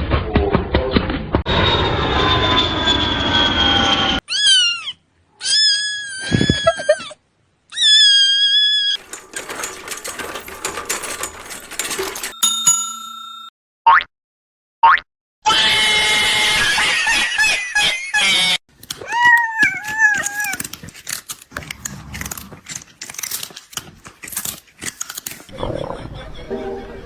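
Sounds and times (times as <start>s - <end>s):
cat meowing: 4.3s - 9.0s, 18.4s - 20.7s
chime: 11.8s - 13.5s.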